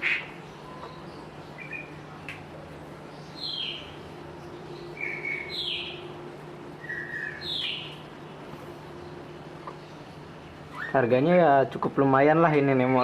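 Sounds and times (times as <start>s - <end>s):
bird chirping: 0.0s - 11.3s.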